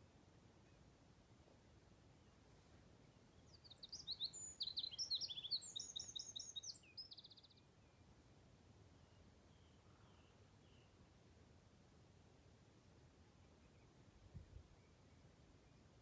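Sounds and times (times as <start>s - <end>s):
faint background noise: 0.0s - 16.0s
songbird singing: 2.1s - 8.2s, 8.8s - 11.4s, 13.2s - 16.0s.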